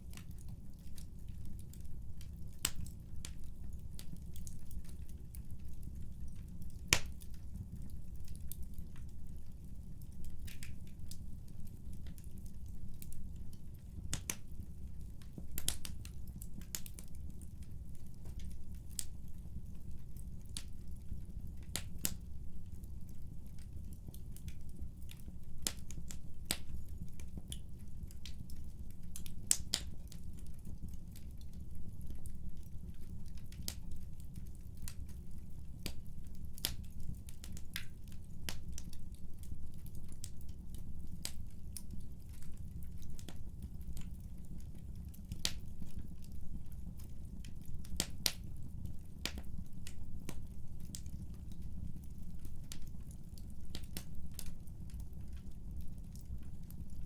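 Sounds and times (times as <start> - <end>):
burning wood popping and crackling: 12.1 - 22.3, 23.2 - 31.7, 32.6 - 57.0.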